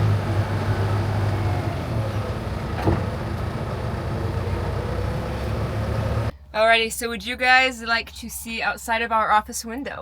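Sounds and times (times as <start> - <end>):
diesel engine droning: 0.0 - 6.3.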